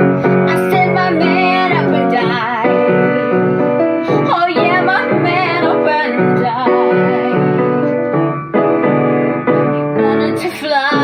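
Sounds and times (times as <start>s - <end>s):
woman singing with vibrato: 0.0s - 8.2s, 9.6s - 11.0s
piano accompaniment: 0.0s - 11.0s.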